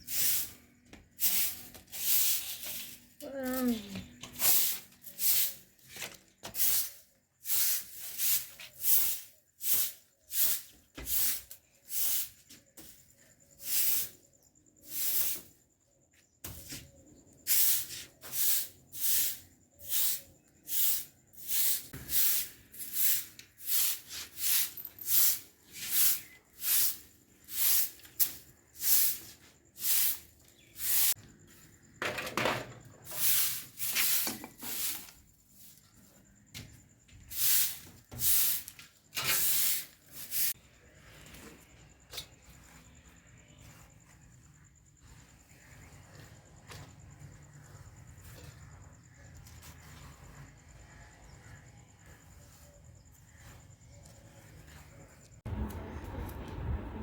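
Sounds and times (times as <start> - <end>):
rhythmic hissing scraping strokes: 0.0 - 5.8, 6.5 - 15.7, 16.5 - 31.7.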